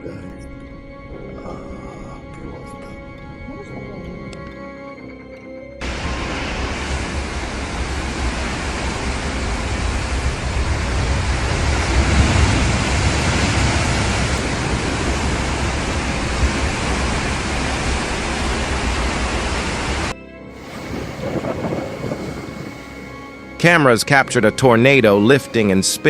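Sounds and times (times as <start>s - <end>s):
loud steady rushing noise: 5.8s - 25.0s.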